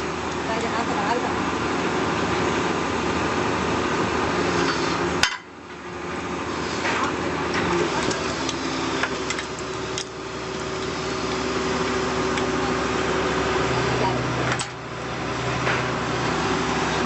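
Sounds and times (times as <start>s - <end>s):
heavy machinery engine running: 0.0s - 17.0s.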